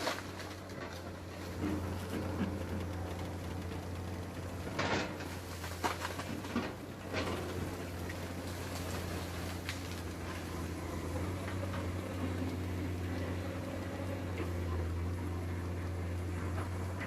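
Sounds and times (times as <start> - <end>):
excavator diesel engine humming: 0.0 - 17.0
faint clicks and knocks: 0.1 - 8.2.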